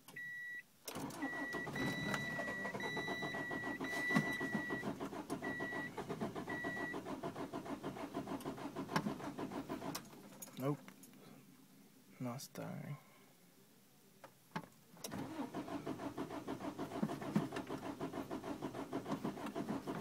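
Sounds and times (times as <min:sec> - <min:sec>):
engine cranking on starter motor: 0:00.9 - 0:10.1, 0:15.0 - 0:20.0.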